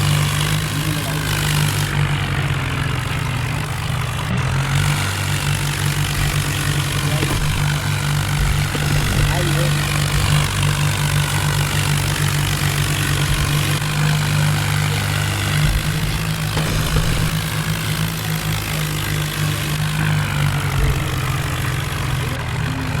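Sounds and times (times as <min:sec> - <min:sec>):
tractor diesel engine droning: 0:00.0 - 0:23.0.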